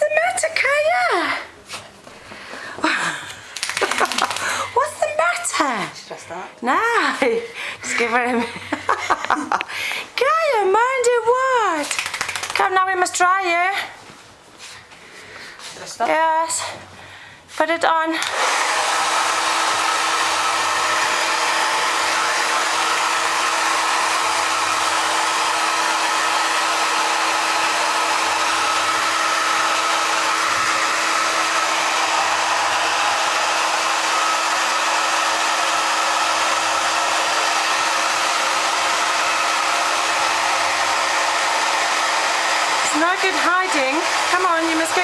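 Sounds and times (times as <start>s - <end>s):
hair dryer running: 2.8s - 5.4s, 11.1s - 12.8s, 18.2s - 45.0s.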